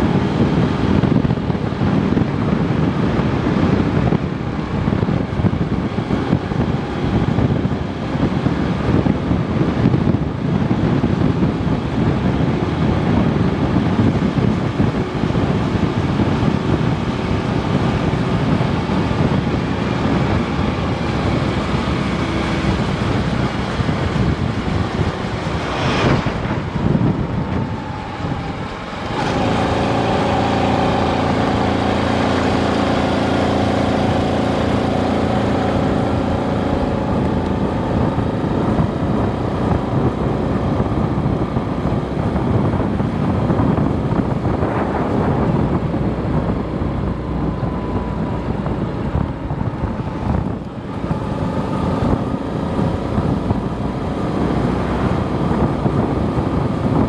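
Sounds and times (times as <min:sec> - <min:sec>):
motorcycle engine running: 0:00.0 - 0:57.0
road and wind noise: 0:00.0 - 0:57.0.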